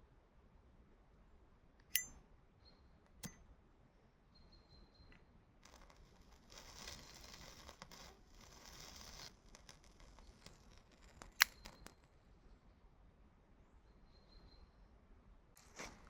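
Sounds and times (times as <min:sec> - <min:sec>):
dry scraping rasping: 0:05.7 - 0:11.6.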